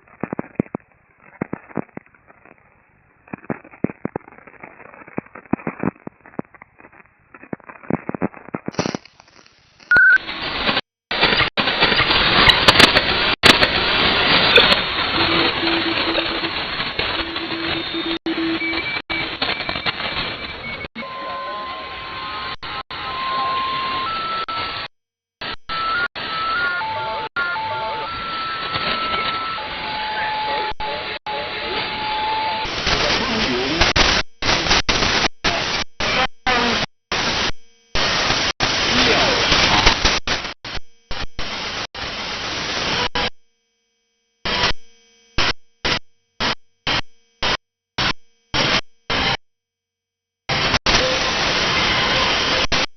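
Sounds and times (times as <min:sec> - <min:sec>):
radio static hiss: 0:00.0 - 0:43.4, 0:44.4 - 0:49.4, 0:50.5 - 0:52.9
faint morse code tone: 0:09.9 - 0:10.2
faint garbled voice: 0:32.7 - 0:34.0.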